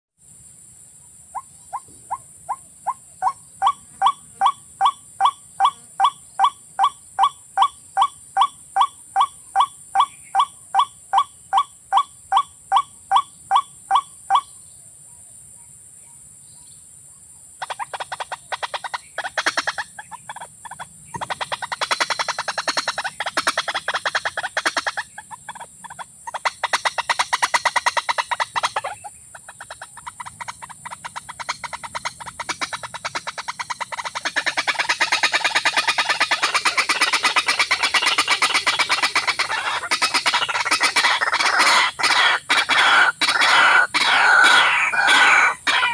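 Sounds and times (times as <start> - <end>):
steady high hiss: 0.2 - 8.4.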